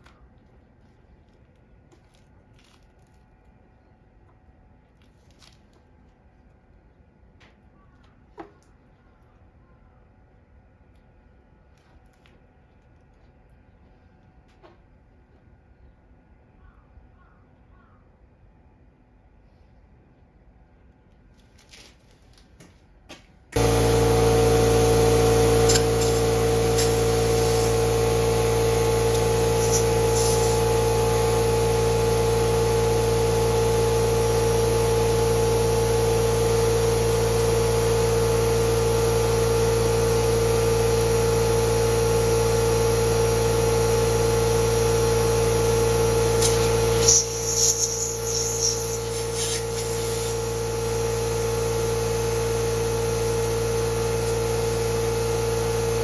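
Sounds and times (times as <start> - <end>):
cultivator engine running: 23.5 - 56.0.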